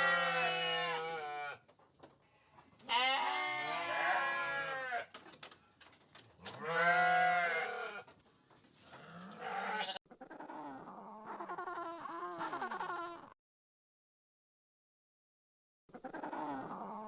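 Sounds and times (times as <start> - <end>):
farm animal bleating: 0.0 - 1.7, 2.3 - 5.2, 6.4 - 8.2, 8.8 - 13.3.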